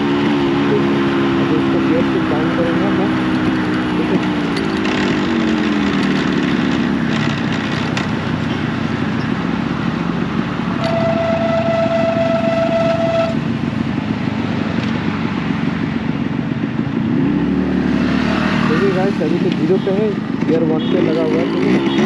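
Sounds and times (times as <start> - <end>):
motorcycle two-stroke engine: 0.0 - 22.0
wind and road noise: 0.0 - 22.0
vehicle horn: 10.8 - 13.4, 20.8 - 22.0.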